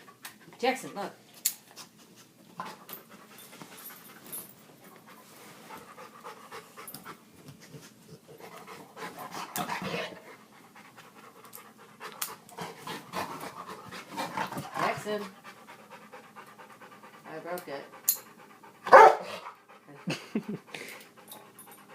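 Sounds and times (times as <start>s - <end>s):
dog panting hard: 4.8s - 21.9s.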